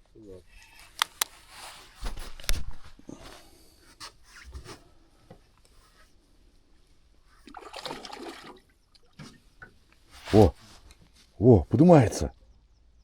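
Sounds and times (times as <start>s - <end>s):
water sloshing and splashing: 7.4s - 9.8s.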